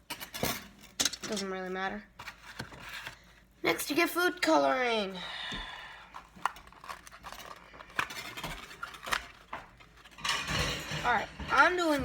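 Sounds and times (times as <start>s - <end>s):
kitchen items clicking and tapping: 0.0s - 1.6s, 6.2s - 12.0s.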